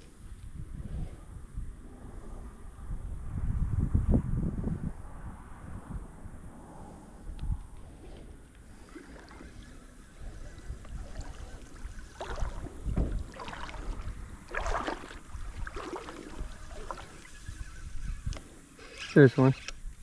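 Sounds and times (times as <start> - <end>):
wind rumble on microphone: 0.0 - 18.8
creek water sloshing and splashing: 8.6 - 17.9.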